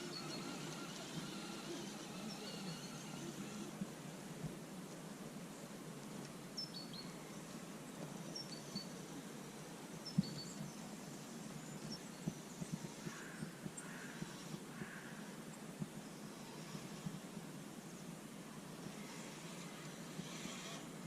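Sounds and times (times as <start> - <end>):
birds chirping: 0.0 - 3.7
outdoor background hiss: 0.0 - 21.0.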